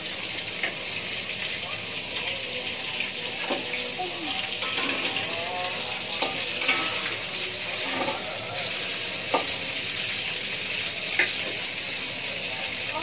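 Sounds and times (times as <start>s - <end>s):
squid sizzling in hot oil: 0.0s - 13.0s
utensil clinking against pan: 6.2s - 7.2s.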